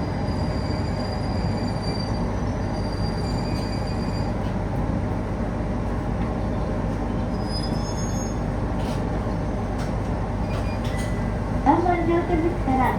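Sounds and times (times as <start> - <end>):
train wheels rumbling on track: 0.0 - 12.9
faint wheel squeal: 7.2 - 8.4.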